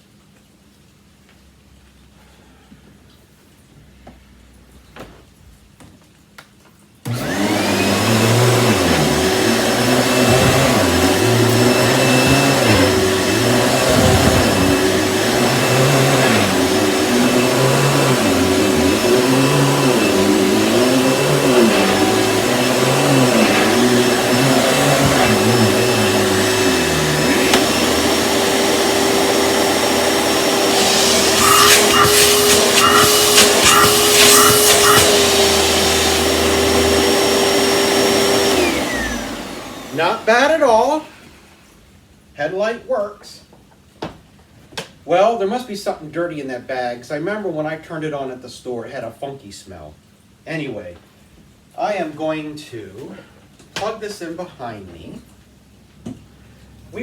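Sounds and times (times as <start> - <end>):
vacuum cleaner motor: 7.1 - 41.7.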